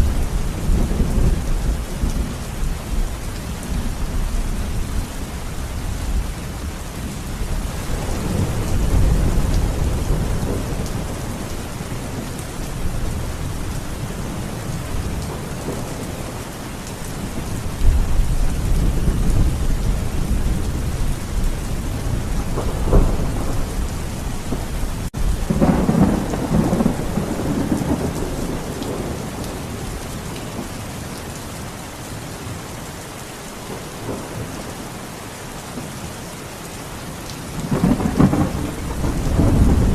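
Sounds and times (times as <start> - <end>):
steady rain: 0.0 - 39.9
thunder rumbling: 5.8 - 16.4, 17.1 - 30.7, 37.5 - 39.9
sharp thunderclap: 22.5 - 29.2, 37.6 - 39.9.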